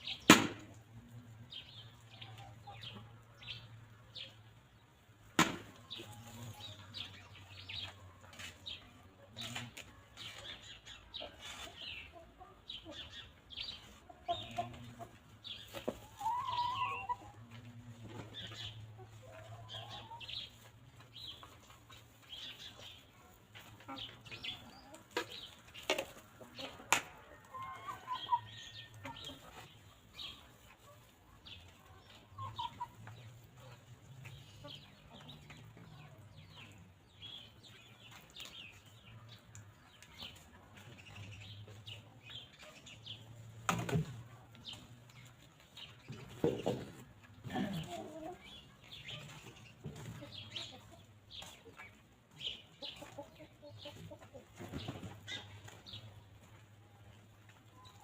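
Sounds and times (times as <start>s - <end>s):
hens clucking: 0.0s - 58.0s
small birds chirping: 5.8s - 26.9s, 27.5s - 58.0s.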